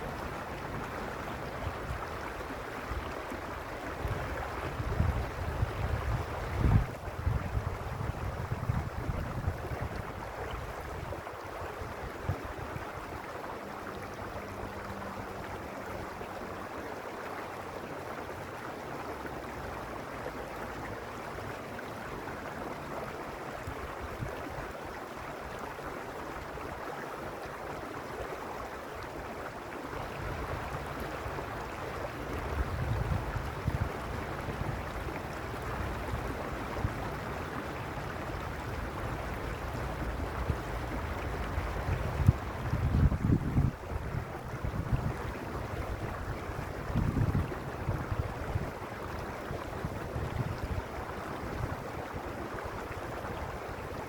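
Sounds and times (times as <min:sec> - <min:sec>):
wind rumbling on microphone: 0:00.0 - 0:17.6, 0:21.3 - 0:28.2, 0:29.2 - 0:54.0
stream rushing over rocks: 0:00.0 - 0:54.0.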